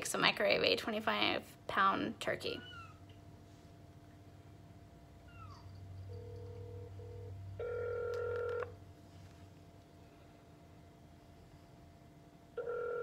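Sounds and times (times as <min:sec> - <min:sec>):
phone call tones: 0:06.2 - 0:08.8, 0:12.6 - 0:13.0.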